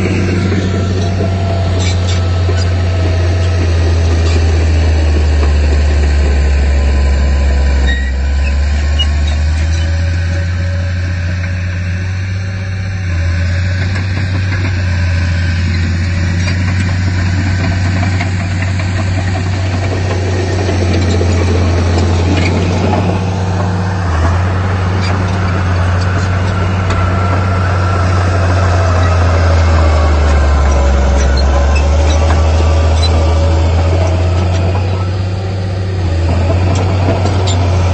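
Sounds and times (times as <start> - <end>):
squeaks: 0.0 - 4.9, 7.7 - 10.8, 20.7 - 23.1, 25.0 - 35.2, 36.2 - 37.9
diesel engine running: 0.0 - 37.9.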